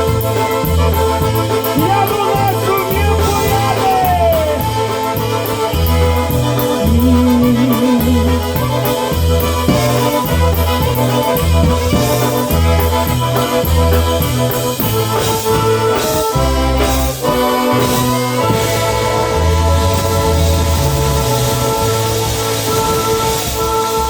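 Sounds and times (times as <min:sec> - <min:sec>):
polka band playing: 0:00.0 - 0:24.0.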